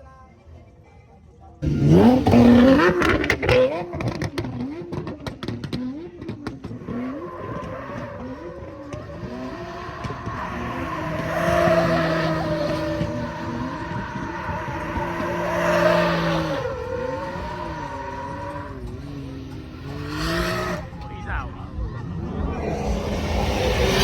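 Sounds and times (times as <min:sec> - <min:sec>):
car engine revving: 0:01.6 - 0:24.0.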